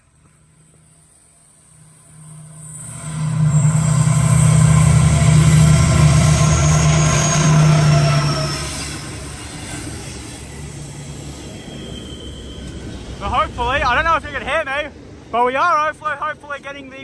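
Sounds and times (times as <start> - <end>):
freight train rumble: 0.0 - 17.0
high-pitched wheel squeal: 0.9 - 13.2.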